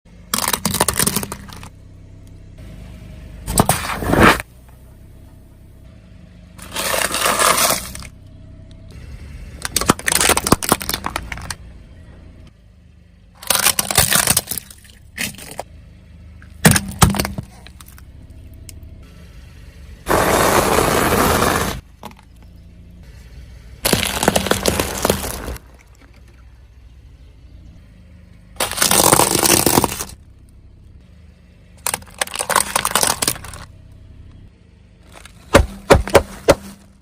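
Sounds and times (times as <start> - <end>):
car low rumble: 0.0 - 37.0
tyres crushing crunchy objects: 0.3 - 1.7, 6.6 - 8.1, 9.6 - 11.6, 13.4 - 15.7, 16.5 - 18.0, 20.1 - 22.3, 23.8 - 26.1, 28.6 - 30.2, 31.8 - 33.7, 35.0 - 37.0.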